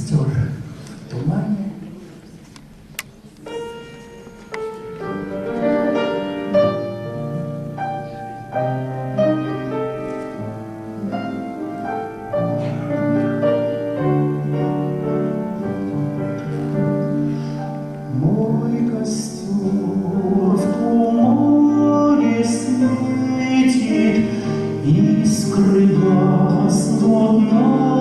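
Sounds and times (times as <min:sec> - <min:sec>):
piano playing: 0:03.2 - 0:28.0.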